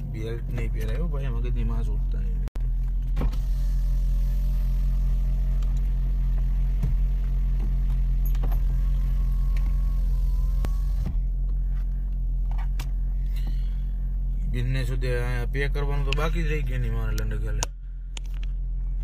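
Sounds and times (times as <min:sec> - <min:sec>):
car engine idling: 0:00.0 - 0:19.0
clicks and knocks of seat movement: 0:11.0 - 0:13.0.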